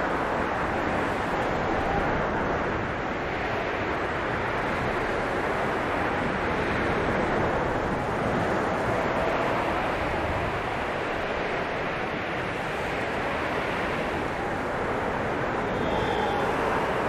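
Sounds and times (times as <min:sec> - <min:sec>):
blizzard wind blowing: 0:00.0 - 0:17.0
whistling howl of wind: 0:00.0 - 0:17.0.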